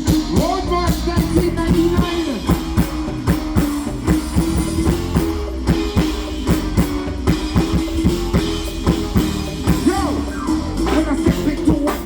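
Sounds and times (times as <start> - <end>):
held bass note: 0.0 - 12.0
live band playing soca: 0.0 - 12.0
steady drum beat: 0.0 - 12.0.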